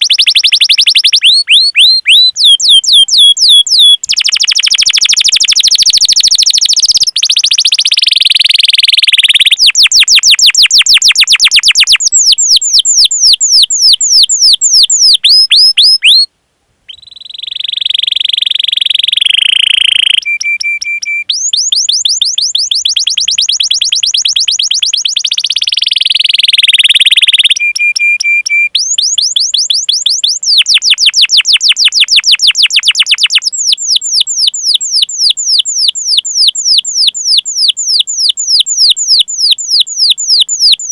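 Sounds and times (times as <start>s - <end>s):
bird whistles: 0.0s - 16.3s, 16.9s - 40.9s
canary singing: 0.0s - 16.3s, 16.9s - 40.9s.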